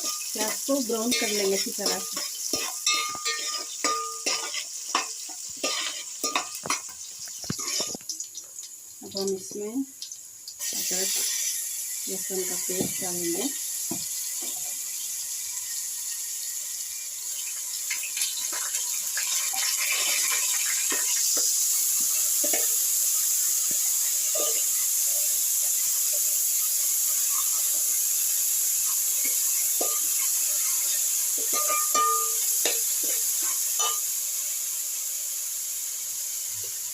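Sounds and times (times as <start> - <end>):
spoon scraping a pot: 0.0 - 8.0, 24.2 - 24.8, 28.9 - 34.1
onions sizzling in hot oil: 0.0 - 36.9.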